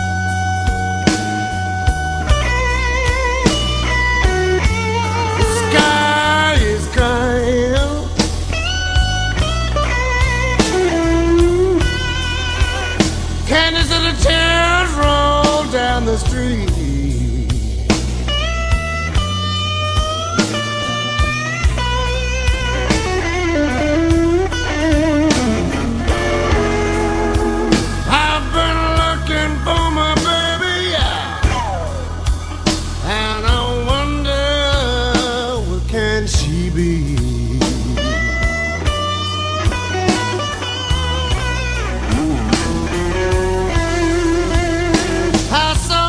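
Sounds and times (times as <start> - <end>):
bass: 0.0 - 46.0
blues electric guitar: 0.0 - 46.0
steady drum beat: 0.0 - 46.0
person singing: 5.1 - 8.4, 10.6 - 17.8, 25.0 - 38.7, 42.1 - 46.0.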